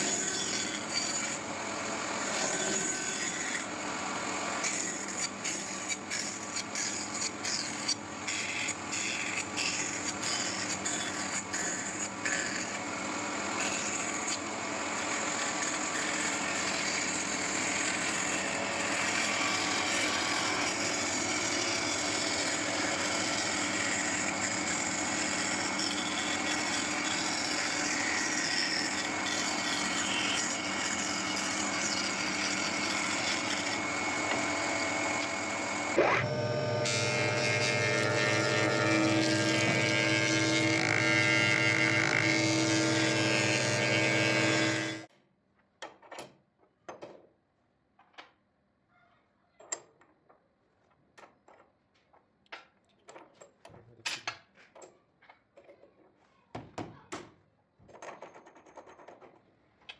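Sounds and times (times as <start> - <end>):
power tool cutting wood: 0.0 - 45.1
motor hum with low drone: 17.2 - 45.1.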